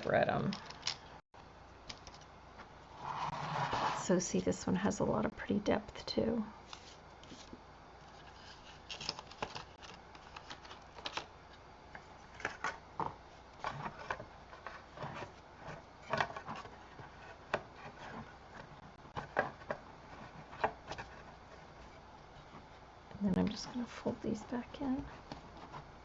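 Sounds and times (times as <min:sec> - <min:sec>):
paper rustling: 0:06.6 - 0:11.3.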